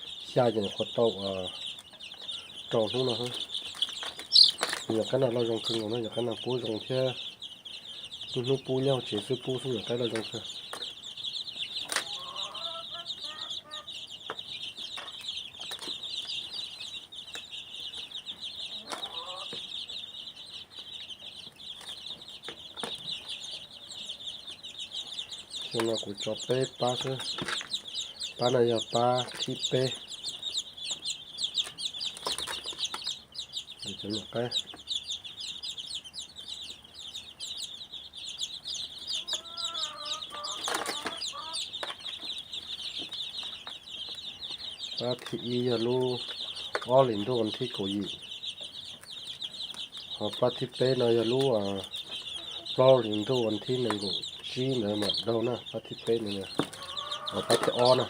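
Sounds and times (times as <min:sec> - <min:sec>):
short lower bird calls: 0:00.0 - 0:04.9
chicks peeping: 0:00.0 - 0:58.0
high-pitched bird chirping: 0:00.0 - 0:58.0.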